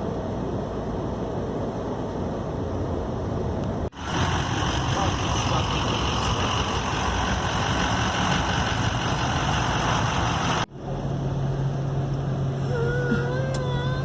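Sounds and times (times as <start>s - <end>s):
steady low hum: 0.0s - 14.0s
vehicle engine running: 3.7s - 14.0s.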